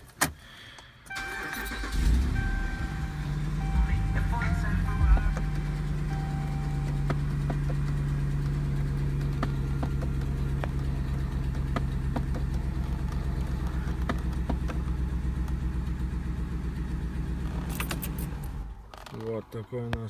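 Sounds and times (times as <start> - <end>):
pickup engine idling: 1.1 - 20.0
knocking clicks behind dashboard: 6.9 - 15.6.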